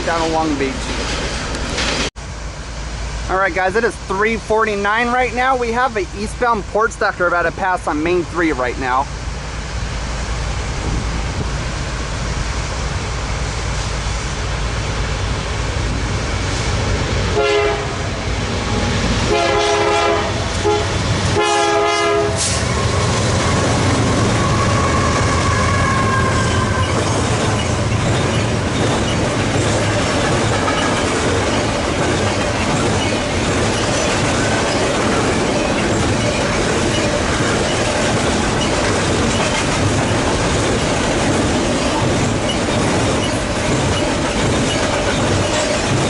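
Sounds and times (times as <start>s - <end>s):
locomotive engine rumble: 0.0s - 46.0s
train rolling on rails: 0.0s - 46.0s
train horn blasts: 17.3s - 18.2s, 19.3s - 26.8s
wheel squeal: 22.4s - 29.2s, 41.8s - 46.0s.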